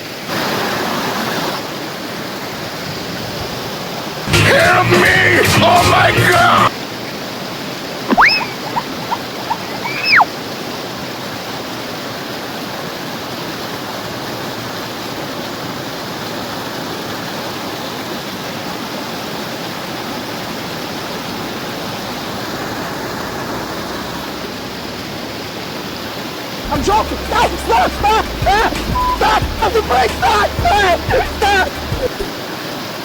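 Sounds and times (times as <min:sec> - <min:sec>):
rising and falling squeal: 0:08.1 - 0:10.3.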